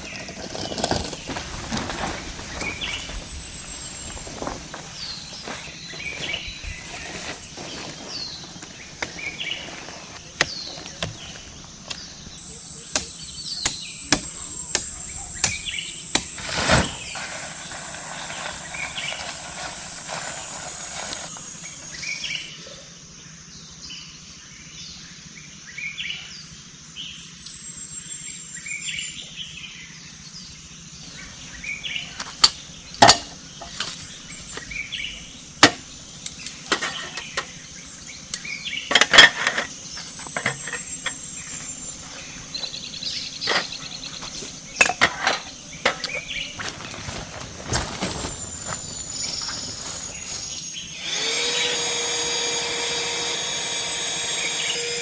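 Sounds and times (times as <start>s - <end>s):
forest birds chirping: 0.0s - 22.5s, 31.0s - 55.0s
steady high buzz: 47.8s - 55.0s.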